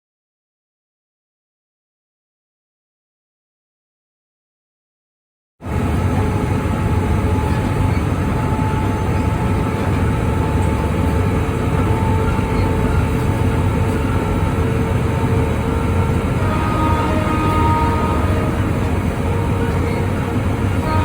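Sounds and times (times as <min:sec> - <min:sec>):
train wheels rumbling on track: 0:05.6 - 0:21.0.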